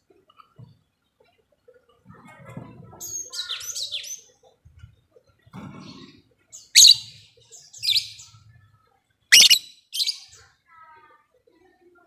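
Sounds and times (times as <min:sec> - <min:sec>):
lovebird chirping: 0:06.6 - 0:08.3, 0:09.3 - 0:10.3.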